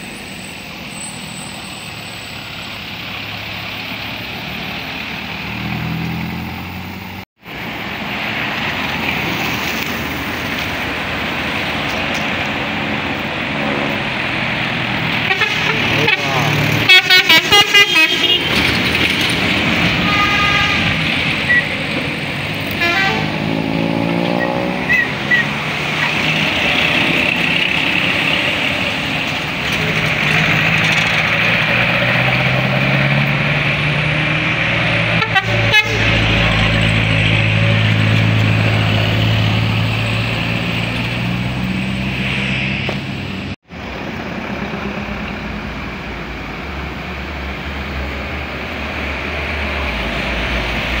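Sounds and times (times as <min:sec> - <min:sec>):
heavy vehicle engine running: 0:01.5 - 0:51.0
vehicle horns: 0:15.1 - 0:18.8, 0:19.8 - 0:21.8, 0:22.6 - 0:25.6, 0:35.0 - 0:36.6.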